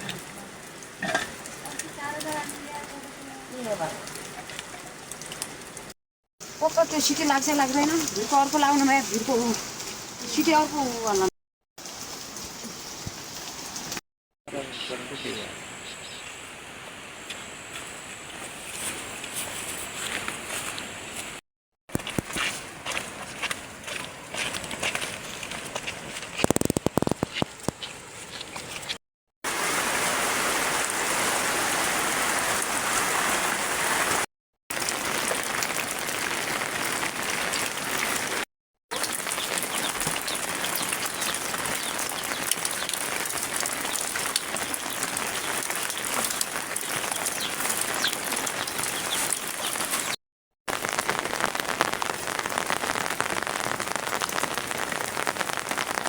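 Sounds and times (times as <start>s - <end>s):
heavy rain falling: 0.0s - 14.0s, 29.5s - 56.0s.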